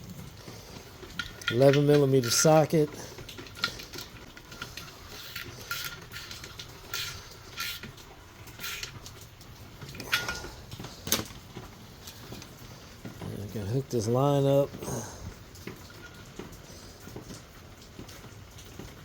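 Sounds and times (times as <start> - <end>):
hand tools clinking and scraping: 0.4 - 12.5
socket wrench ratcheting: 1.2 - 2.6, 3.5 - 9.2.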